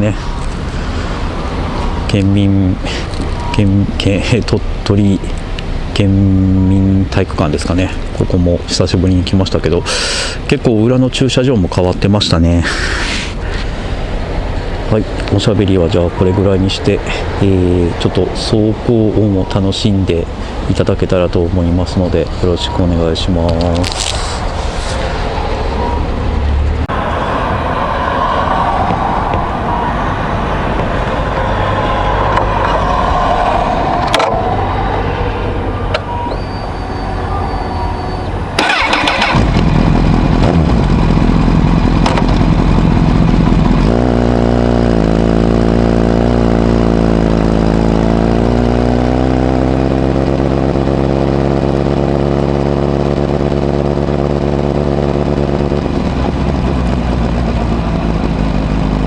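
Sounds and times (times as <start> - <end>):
motorcycle engine starting and idling: 38.6 - 59.0.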